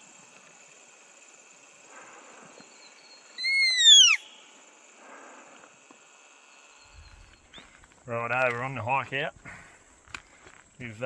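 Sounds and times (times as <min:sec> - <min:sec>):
bird whistled call: 0:03.1 - 0:04.4.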